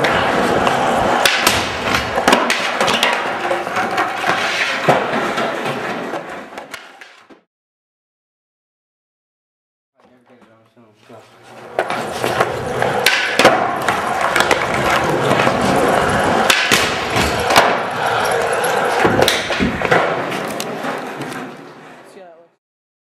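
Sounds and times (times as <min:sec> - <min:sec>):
skateboard clacks and landing knocks: 0:00.0 - 0:07.5, 0:11.6 - 0:21.9
skateboard rolling on hard floor: 0:00.0 - 0:07.5, 0:10.0 - 0:22.3.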